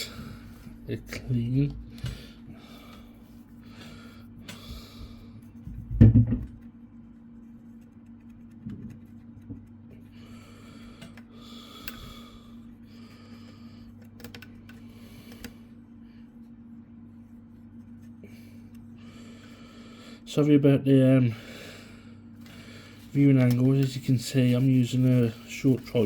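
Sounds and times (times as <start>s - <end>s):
steady low hum: 0.0s - 26.0s
tissue wiping strokes: 6.9s - 9.8s, 22.8s - 26.0s.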